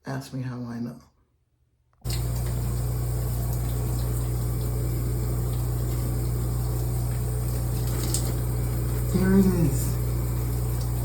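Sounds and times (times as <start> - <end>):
shower water running: 2.0 - 11.0
low hum: 2.1 - 11.0.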